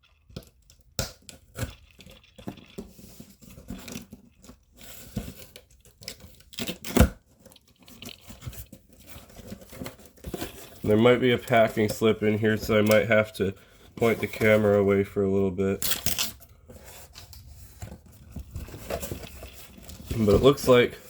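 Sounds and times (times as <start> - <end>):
packing tape tearing: 4.8 - 7.2, 15.8 - 16.5
cardboard flaps rustling: 8.2 - 14.9, 15.8 - 21.0.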